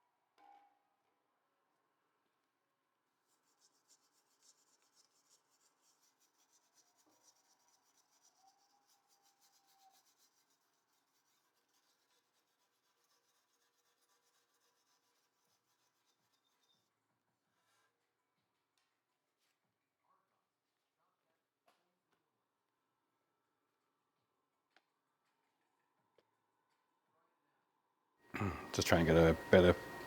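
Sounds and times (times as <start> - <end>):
faint rapid scratching: 3.3 - 17.0.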